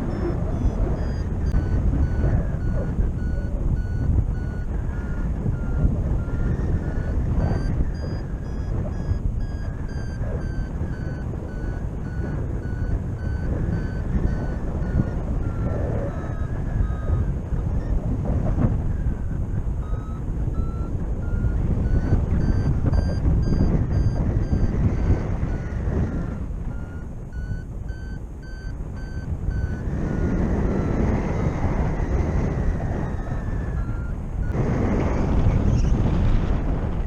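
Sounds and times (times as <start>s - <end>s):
variometer beeping: 0.0s - 35.8s
wind buffeting microphone: 0.0s - 37.0s.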